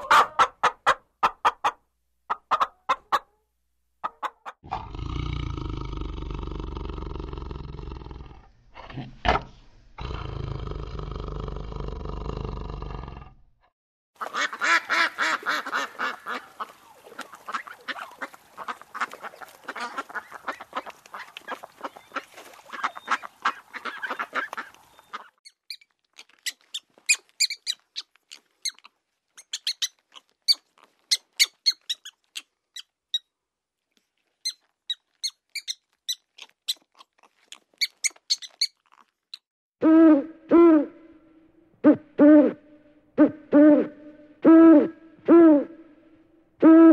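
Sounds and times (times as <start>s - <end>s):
geese honking and quacking: 14.2s - 25.4s
high-pitched chirping calls: 25.0s - 32.9s, 34.4s - 36.8s, 37.5s - 38.8s.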